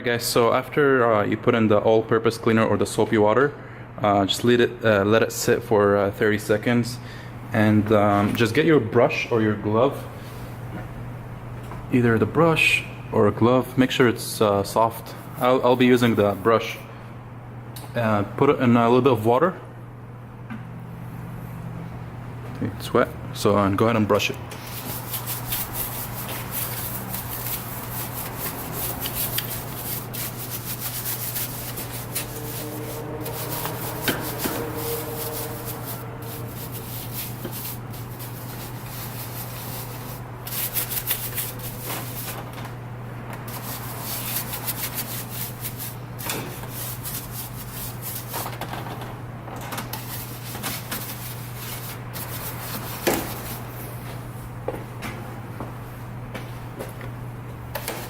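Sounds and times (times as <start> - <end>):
brush scrubbing wet surface: 24.6 - 42.4, 43.5 - 48.6, 50.0 - 53.8.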